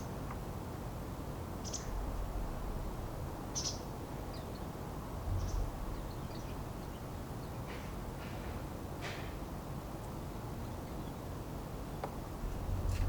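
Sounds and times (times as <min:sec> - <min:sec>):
songbird high calls: 0:01.6 - 0:02.0, 0:03.6 - 0:04.7
steady low rumble: 0:01.9 - 0:03.6, 0:12.3 - 0:13.0.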